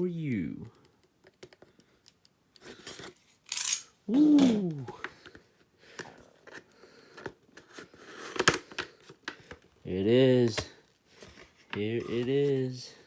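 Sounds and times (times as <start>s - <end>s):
man exclaiming: 4.1s - 5.0s
packaging clicks and rustles: 4.4s - 13.0s.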